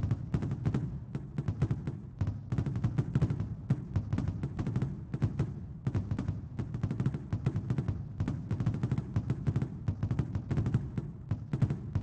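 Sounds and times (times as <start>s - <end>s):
fireworks bangs and crackles: 10.4s - 12.0s.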